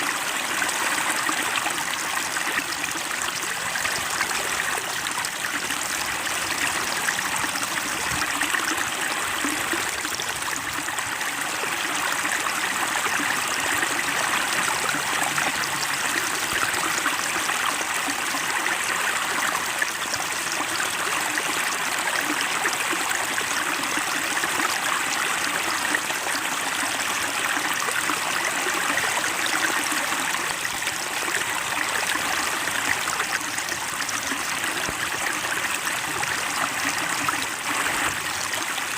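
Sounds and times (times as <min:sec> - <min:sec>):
stream flowing and trickling: 0:00.0 - 0:38.9.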